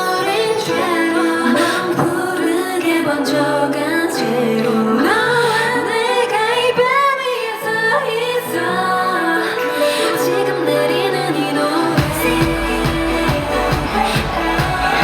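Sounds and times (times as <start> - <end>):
woman singing: 0.0 - 15.0
pop backing track with bass: 12.0 - 15.0.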